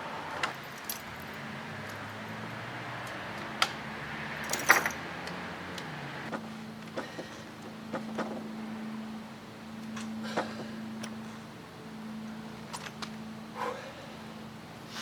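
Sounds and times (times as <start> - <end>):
metallic clinks and rattles: 0.5 - 2.2, 4.4 - 5.0
steady low hum: 6.3 - 15.0.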